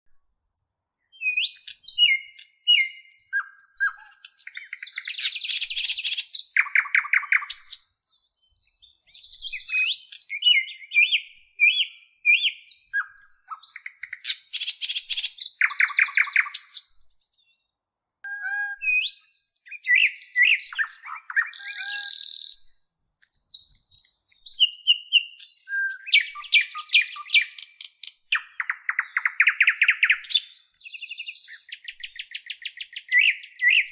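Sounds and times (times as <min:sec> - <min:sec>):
songbirds singing: 0:00.6 - 0:33.9.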